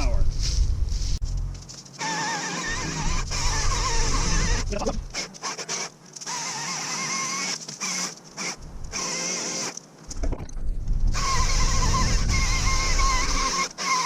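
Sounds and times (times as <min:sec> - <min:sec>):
chainsaw cutting wood: 0:02.0 - 0:09.8, 0:11.1 - 0:14.0.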